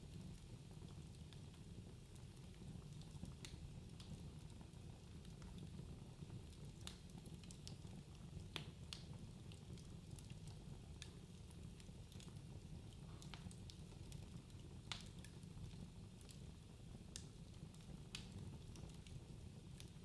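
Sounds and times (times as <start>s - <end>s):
wood fire rumbling: 0.0s - 20.0s
logs crackling and popping: 6.5s - 16.5s, 17.1s - 20.0s.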